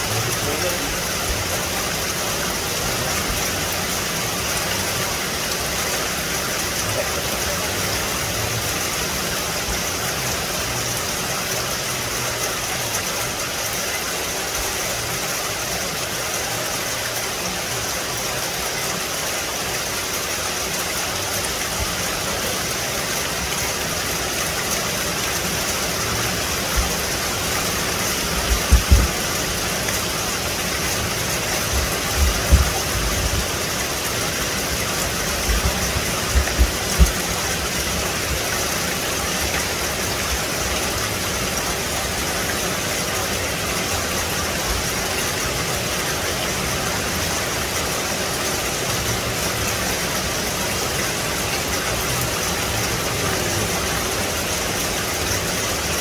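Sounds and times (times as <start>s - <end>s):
rain on foliage: 0.0s - 56.0s
low thumps: 28.4s - 29.4s, 31.7s - 33.6s.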